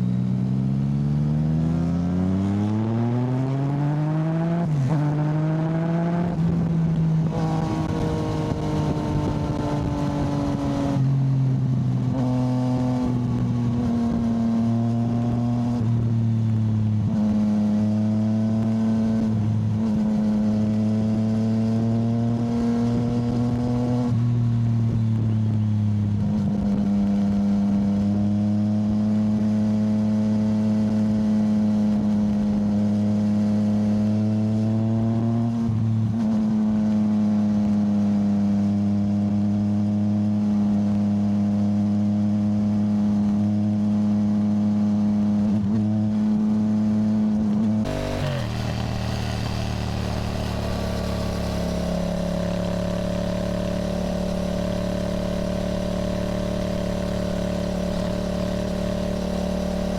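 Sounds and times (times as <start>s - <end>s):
motorcycle engine accelerating: 0.0s - 25.4s, 45.3s - 59.9s
wind and road noise: 0.0s - 59.9s.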